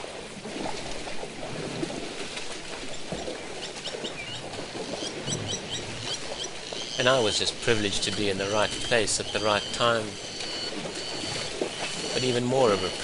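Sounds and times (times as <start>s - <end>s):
small birds chirping: 4.0s - 13.0s.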